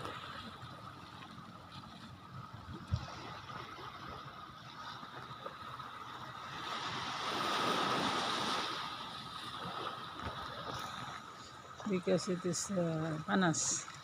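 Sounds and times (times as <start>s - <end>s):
surf washing in: 5.9s - 11.3s.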